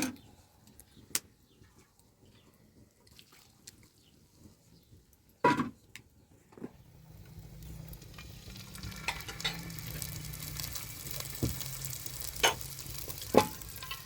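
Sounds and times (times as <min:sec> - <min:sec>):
food sizzling in a pan: 0:06.9 - 0:14.0.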